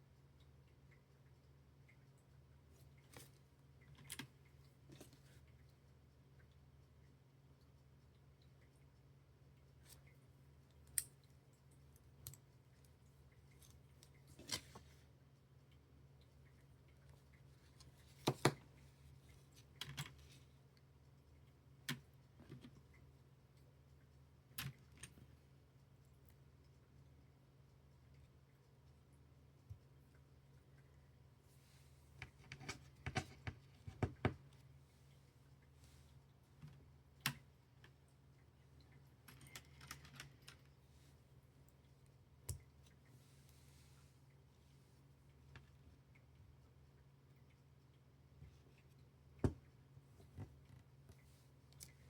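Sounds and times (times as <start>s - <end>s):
faint steady hum: 0.0s - 52.0s
plastic building bricks clicking: 39.2s - 40.7s.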